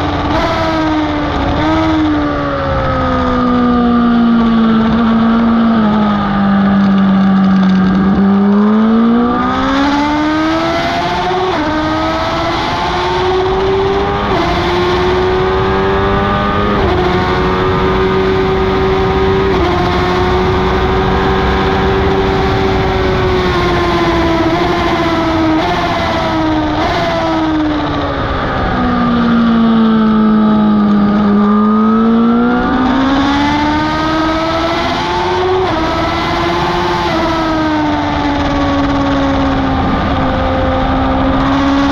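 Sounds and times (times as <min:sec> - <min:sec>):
motorbike engine at speed: 0:00.0 - 0:41.9
loud wind rush: 0:07.7 - 0:41.9.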